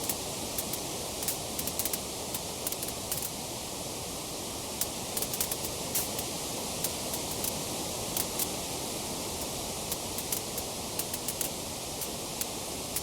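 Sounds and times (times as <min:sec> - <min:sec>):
hiss of burning: 0:04.8 - 0:08.6, 0:09.3 - 0:13.0.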